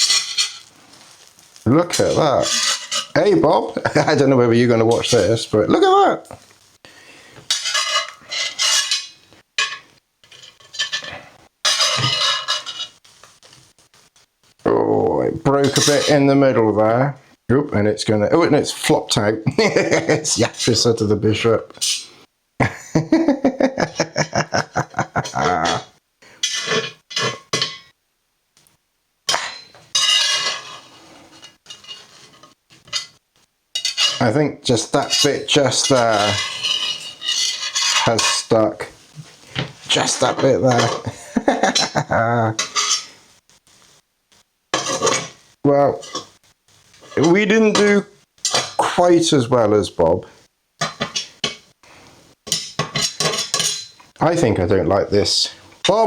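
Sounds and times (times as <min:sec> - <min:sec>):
spatula tapping a skillet: 0:00.0 - 0:01.6, 0:31.4 - 0:34.2, 0:50.8 - 0:51.7, 0:52.4 - 0:54.1
spatula scraping skillet: 0:00.0 - 0:14.6, 0:15.6 - 0:16.5, 0:21.7 - 0:22.3, 0:23.7 - 0:27.9, 0:29.3 - 0:48.8, 0:50.4 - 0:54.5.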